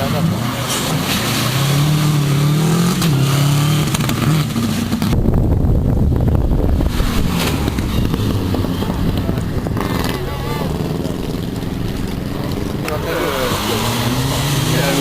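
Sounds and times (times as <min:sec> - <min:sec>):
rally car engine revving: 0:00.0 - 0:15.0
dull low rumble: 0:05.0 - 0:13.4.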